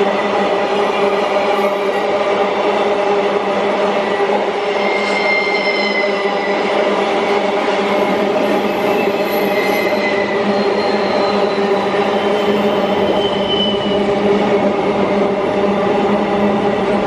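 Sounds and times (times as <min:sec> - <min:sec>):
freight train rumbling past: 0:00.0 - 0:17.0
high wheel squeals: 0:04.8 - 0:06.7, 0:08.4 - 0:14.0.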